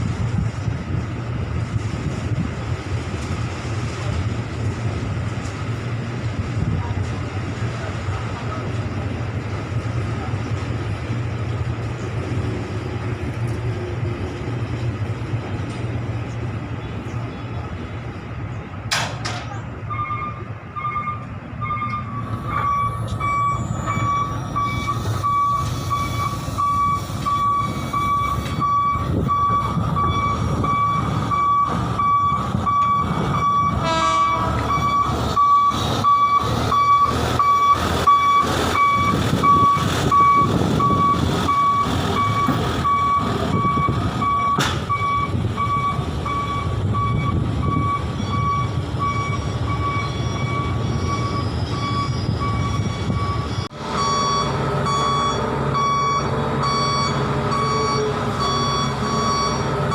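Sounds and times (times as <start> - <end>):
engine running: 0.0 - 59.9
metal knocks and clanks: 18.9 - 19.6
reversing alarm beeping: 19.9 - 59.9.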